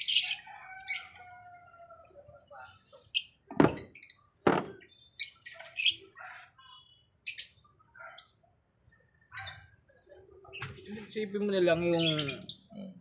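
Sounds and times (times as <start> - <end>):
loud sharp knocks: 4.4 - 4.8.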